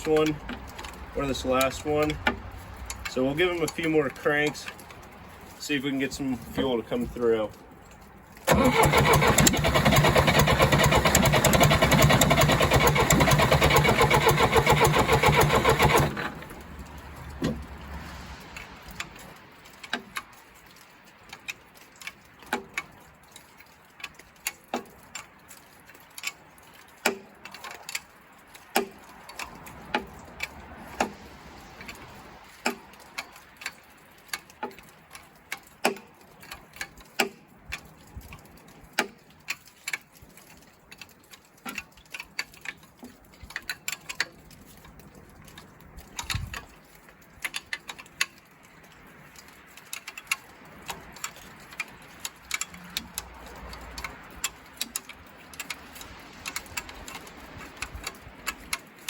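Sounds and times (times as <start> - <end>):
diesel engine cranking: 0.0 - 7.6, 8.3 - 20.1, 50.0 - 55.8.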